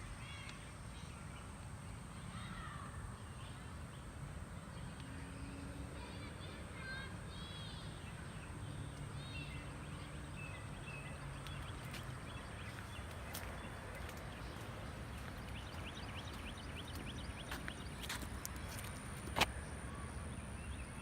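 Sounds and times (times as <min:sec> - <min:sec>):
small birds chirping: 0:02.2 - 0:21.0
steady low rumble: 0:11.3 - 0:21.0.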